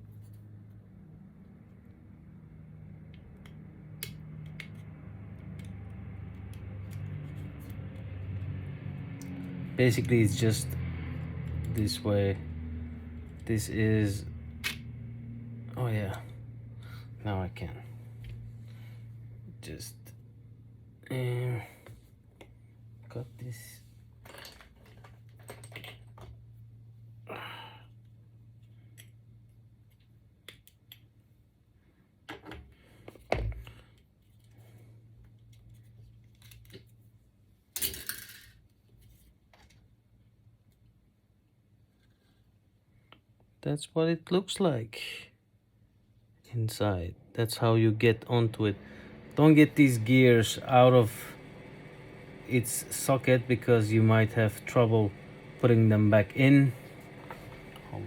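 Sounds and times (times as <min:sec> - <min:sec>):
steady low hum: 0:00.0 - 0:24.3, 0:44.8 - 0:58.0
clicks and taps of parts handled: 0:03.1 - 0:05.8
person exhaling: 0:16.8 - 0:17.2, 0:27.2 - 0:28.0, 0:48.8 - 0:49.2.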